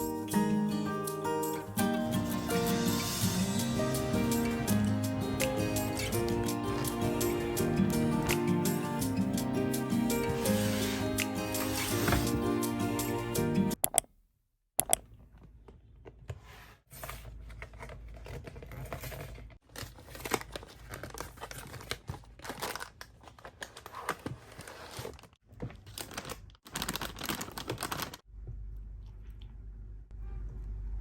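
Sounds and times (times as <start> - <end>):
packaging crinkling and tearing: 17.4 - 28.2.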